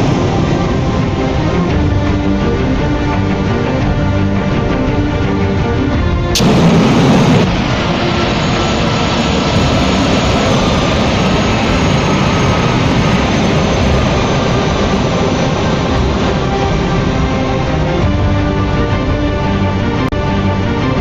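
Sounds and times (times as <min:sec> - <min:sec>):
jet engines roaring: 0:00.0 - 0:05.6, 0:06.3 - 0:21.0
high engine whine: 0:06.3 - 0:19.3.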